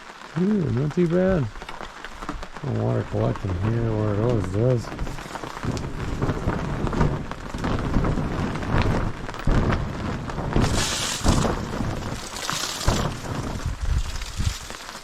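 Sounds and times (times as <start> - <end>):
steady rain falling: 0.0 - 15.0
low rumbling: 2.4 - 15.0
loud rushing hiss: 10.6 - 14.7.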